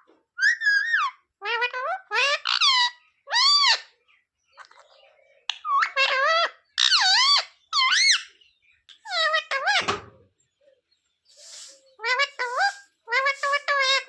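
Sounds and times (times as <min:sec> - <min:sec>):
parrot squeaking: 0:00.4 - 0:03.9, 0:05.5 - 0:10.0, 0:11.4 - 0:14.0.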